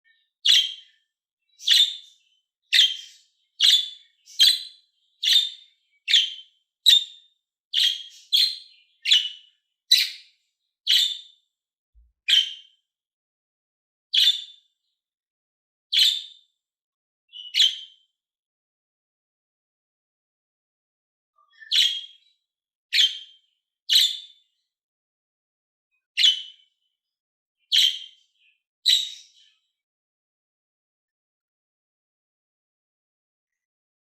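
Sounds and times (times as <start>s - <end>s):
parrot chirping: 0.4s - 0.9s, 1.6s - 7.2s, 7.8s - 10.3s, 10.9s - 11.3s, 12.3s - 12.7s, 14.2s - 14.5s, 15.9s - 16.3s, 17.3s - 18.0s, 21.5s - 22.2s, 22.9s - 24.3s, 26.2s - 26.6s, 27.7s - 28.2s, 28.8s - 29.4s.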